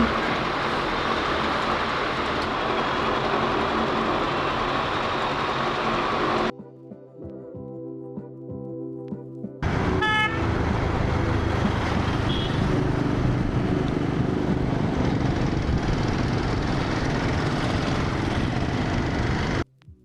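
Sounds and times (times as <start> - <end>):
vehicle horn toot: 0.0 - 1.2, 9.8 - 10.6, 12.2 - 12.8
road traffic noise: 0.0 - 6.5, 9.6 - 19.6.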